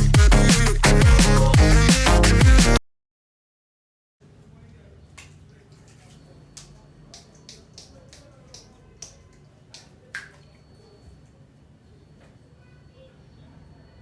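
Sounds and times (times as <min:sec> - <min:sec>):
light sharp clicks and taps: 0:05.2 - 0:10.6.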